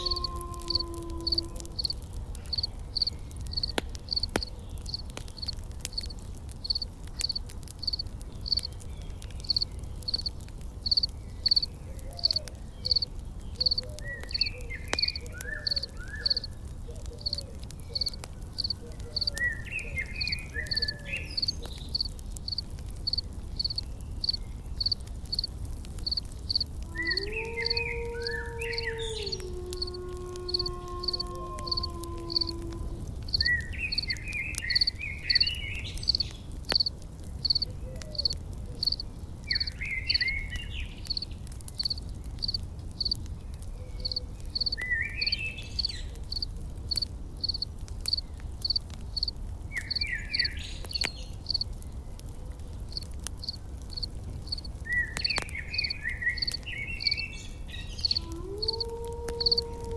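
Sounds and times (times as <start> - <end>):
insect chirping in pulses: 0.0 - 4.3, 4.9 - 8.7, 9.4 - 13.8, 18.0 - 19.3, 20.2 - 32.7, 34.7 - 39.0, 41.1 - 43.2, 44.0 - 46.5, 47.4 - 49.3, 52.9 - 54.7, 58.0 - 59.8
campfire crackling: 0.0 - 59.9.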